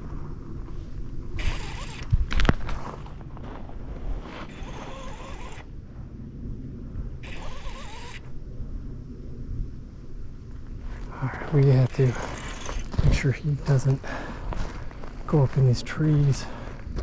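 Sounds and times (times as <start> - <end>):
fishing reel drag buzzing: 1.4 - 2.5, 4.4 - 5.7, 7.2 - 8.3, 11.8 - 13.0.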